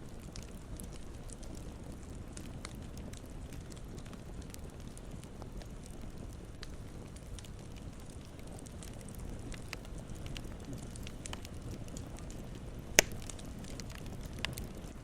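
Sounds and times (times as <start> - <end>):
campfire crackles: 0.0 - 15.0
campfire low rumble: 0.0 - 15.0
loud sharp pop: 13.0 - 13.3.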